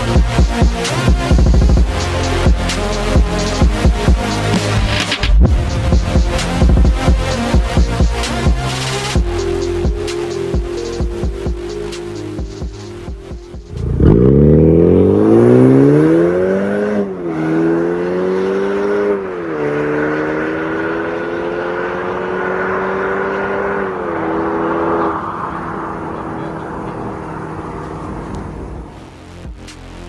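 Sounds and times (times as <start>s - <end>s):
car engine accelerating hard: 13.0s - 29.6s.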